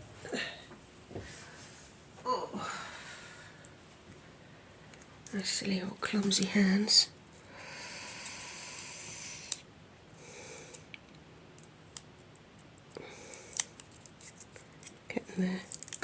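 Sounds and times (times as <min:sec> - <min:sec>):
wrapping rustling: 0:13.4 - 0:16.0
plastic and paper clicks: 0:15.7 - 0:16.0.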